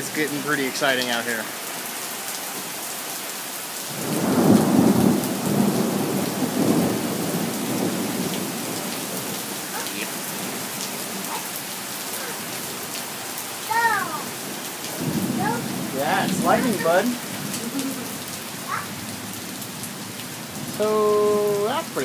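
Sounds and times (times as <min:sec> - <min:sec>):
steady rain: 0:00.0 - 0:22.0
thunder rumbling: 0:03.9 - 0:11.4, 0:14.2 - 0:22.0.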